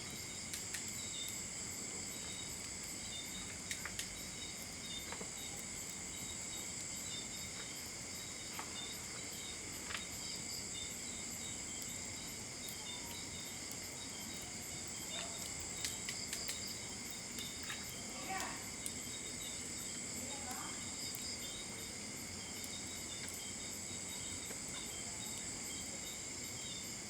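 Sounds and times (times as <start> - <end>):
crickets chirping: 0.0 - 27.0
wood fire crackling pops: 0.1 - 1.5, 2.1 - 6.1, 12.7 - 19.6.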